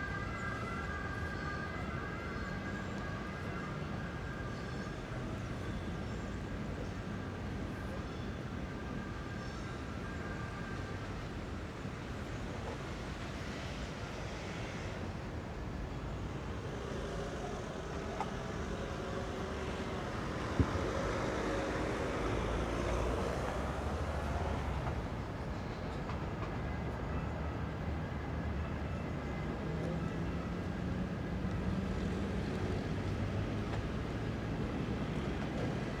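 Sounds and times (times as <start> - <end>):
large vehicle rumbling: 16.1 - 26.1.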